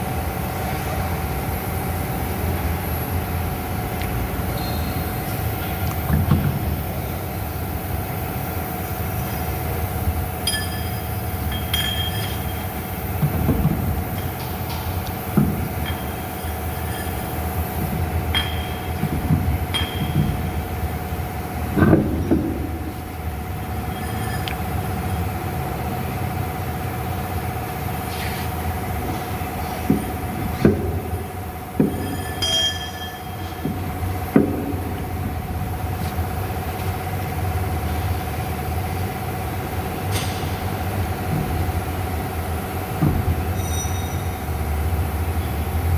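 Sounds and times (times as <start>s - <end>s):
low mechanical rumble: 0.0s - 45.9s
metallic clinks: 10.4s - 13.0s, 15.7s - 20.8s, 23.8s - 25.2s, 31.8s - 34.3s, 43.5s - 44.8s.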